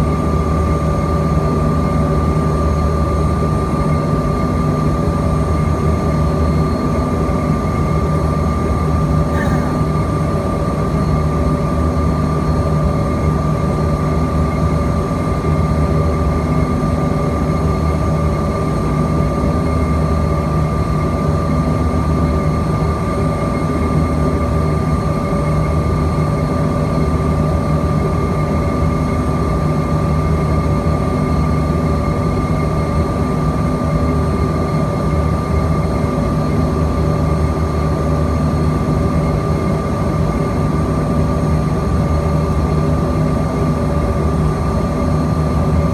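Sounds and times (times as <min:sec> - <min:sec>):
jet engine cabin drone: 0:00.0 - 0:45.9
low pulsing hum: 0:05.8 - 0:11.0.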